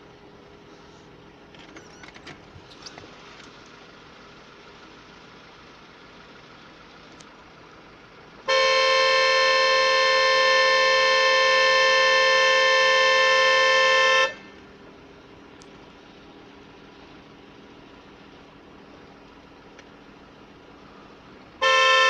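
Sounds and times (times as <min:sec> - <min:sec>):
faint idling engine: 0:00.0 - 0:22.0
vehicle horn blast: 0:08.4 - 0:14.6, 0:21.6 - 0:22.0.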